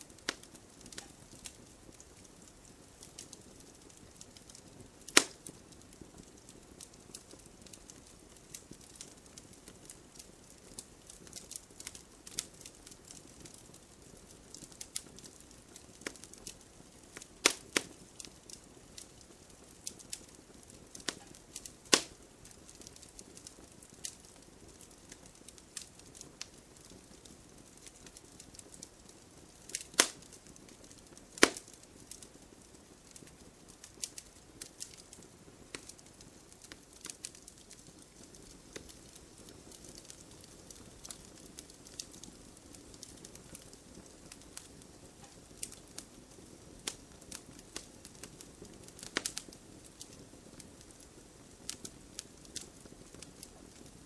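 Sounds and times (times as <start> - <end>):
campfire crackling and popping: 0.0 - 54.0
faint low hiss: 0.0 - 54.0.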